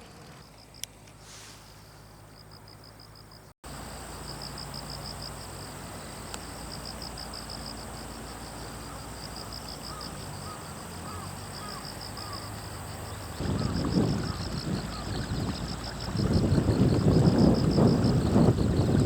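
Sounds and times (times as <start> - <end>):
insect trilling: 2.4 - 19.0
wind rumbling on microphone: 5.6 - 19.0.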